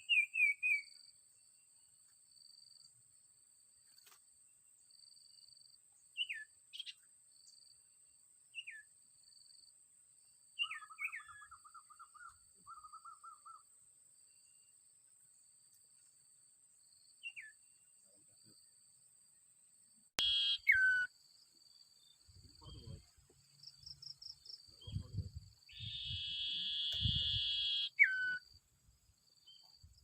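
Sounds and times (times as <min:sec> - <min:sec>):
songbird chirps: 0:00.0 - 0:03.0, 0:03.8 - 0:09.7, 0:10.5 - 0:16.2, 0:16.8 - 0:19.5, 0:20.2 - 0:30.0
bird trills: 0:10.6 - 0:13.6, 0:20.2 - 0:21.1, 0:25.7 - 0:28.5.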